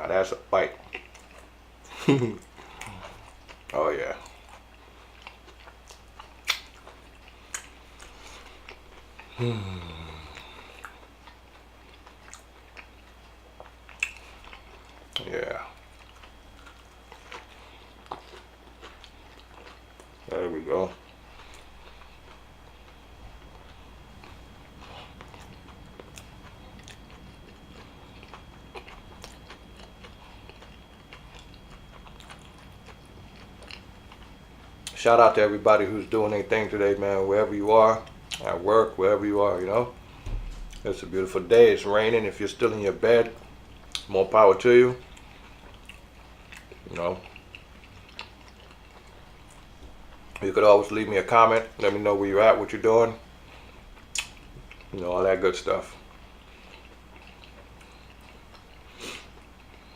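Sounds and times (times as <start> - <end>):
low contented hum: 0.0 - 59.9
chewing a mouthful of food: 0.7 - 37.3, 38.0 - 38.6, 42.3 - 52.0, 52.6 - 59.9
wet mouth clicks: 5.9 - 6.8, 13.9 - 14.2, 54.1 - 54.9.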